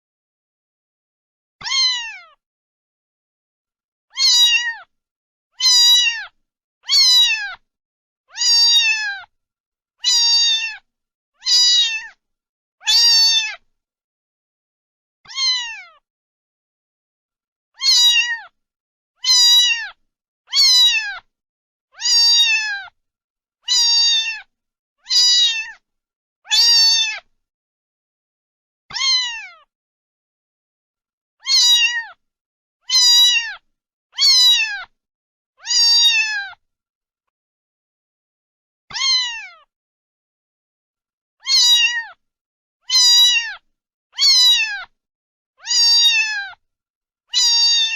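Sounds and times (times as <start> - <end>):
cat meowing: 1.6 - 2.4, 4.1 - 4.9, 5.6 - 7.6, 8.3 - 9.3, 10.0 - 12.2, 12.8 - 13.6, 15.3 - 16.0, 17.8 - 18.6, 19.2 - 21.3, 22.0 - 23.0, 23.6 - 25.8, 26.5 - 27.3, 28.9 - 29.7, 31.4 - 32.2, 32.8 - 35.0, 35.6 - 36.6, 38.9 - 39.7, 41.4 - 42.2, 42.8 - 43.6, 44.2 - 44.9, 45.6 - 46.6, 47.3 - 47.9.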